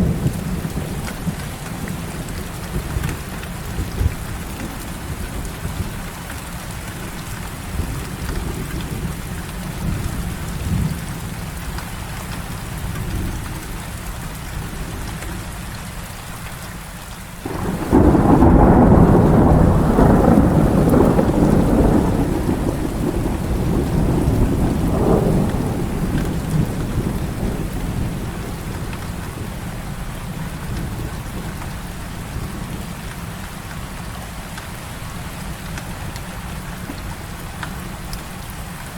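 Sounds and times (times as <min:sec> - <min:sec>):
low rumbling thunder: 0:00.0 - 0:06.1, 0:17.4 - 0:32.9
heavy rain: 0:00.0 - 0:38.9
loud thunderclap: 0:17.4 - 0:29.6.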